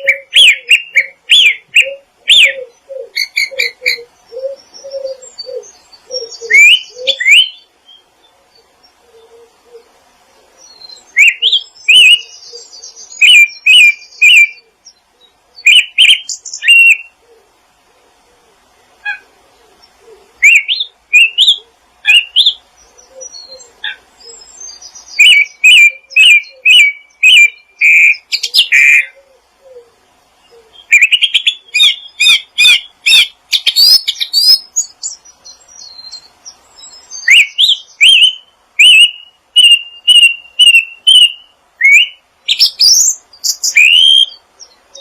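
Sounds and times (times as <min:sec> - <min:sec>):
songbirds chirping: 0:00.0 - 0:45.0
high scratchy bird chatter: 0:30.8 - 0:44.3.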